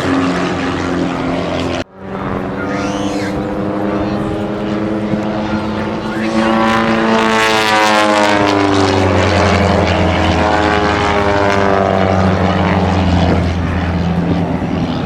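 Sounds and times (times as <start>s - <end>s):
propeller airplane flying past: 0.0s - 15.0s.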